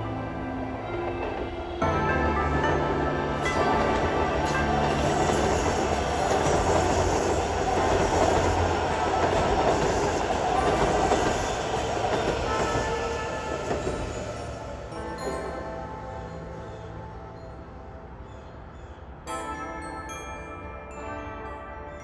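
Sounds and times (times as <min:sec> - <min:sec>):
train wheels on rail: 0:00.2 - 0:15.0.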